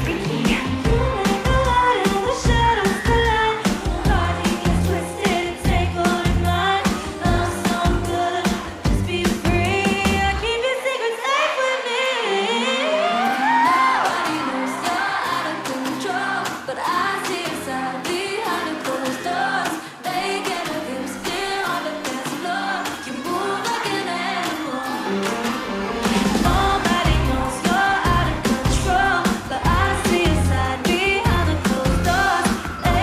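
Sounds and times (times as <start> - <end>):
bass line: 0.0 - 10.5, 25.7 - 33.0
backing track: 0.0 - 10.7, 12.4 - 33.0
women singing pop song: 0.0 - 33.0.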